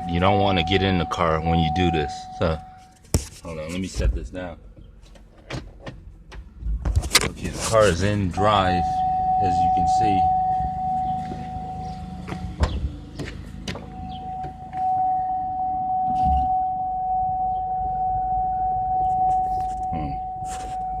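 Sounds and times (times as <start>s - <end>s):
low drivetrain hum: 0.0s - 21.0s
sharp clicks and clunks: 4.8s - 7.6s
dull thump: 12.2s - 15.0s.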